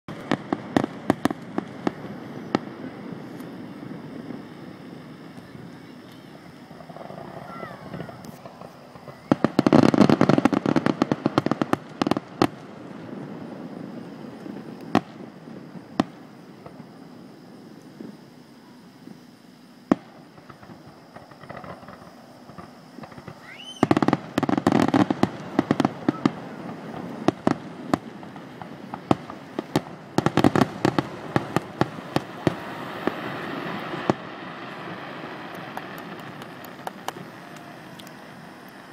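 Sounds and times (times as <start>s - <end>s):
fireworks bursting with sharp bangs: 0.1s - 38.9s.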